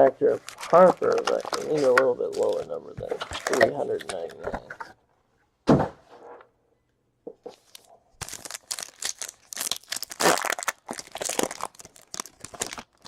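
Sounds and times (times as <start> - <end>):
foil wrapper tearing and crinkling: 0.3 - 2.7, 8.2 - 13.0.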